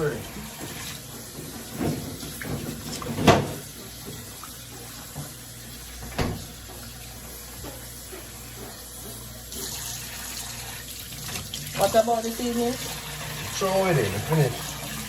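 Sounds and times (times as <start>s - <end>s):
tap running into a sink: 0.0s - 8.0s.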